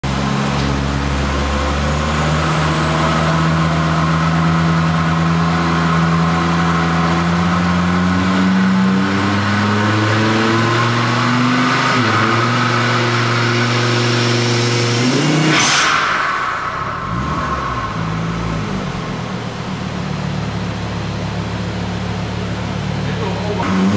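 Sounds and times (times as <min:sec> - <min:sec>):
car engine revving under load: 0:00.0 - 0:23.9
loud turbo whoosh: 0:00.8 - 0:20.0.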